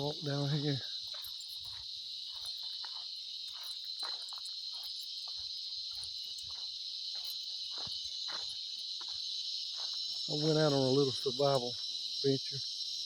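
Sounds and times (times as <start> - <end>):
cicadas buzzing: 0.0 - 13.0
footsteps: 1.0 - 10.4.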